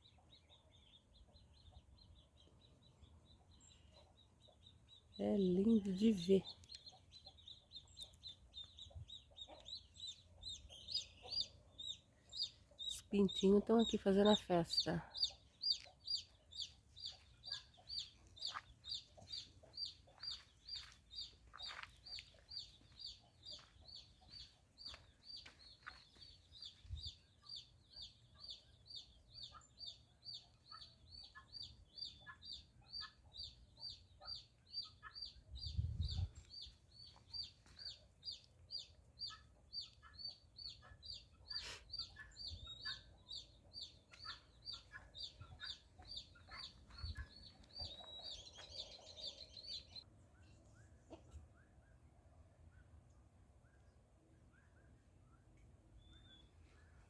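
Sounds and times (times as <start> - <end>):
chicks peeping: 5.5 - 13.9, 14.8 - 50.0.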